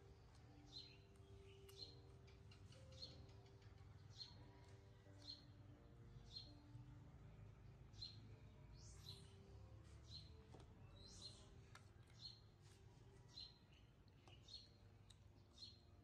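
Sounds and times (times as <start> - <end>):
faint bird chirps: 0.0 - 5.6.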